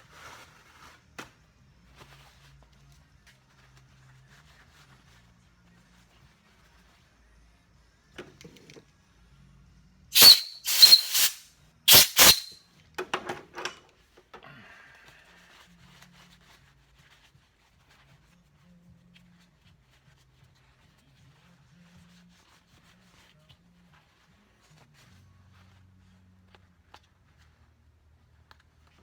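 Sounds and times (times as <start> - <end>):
aerosol spray hissing: 10.2 - 12.6.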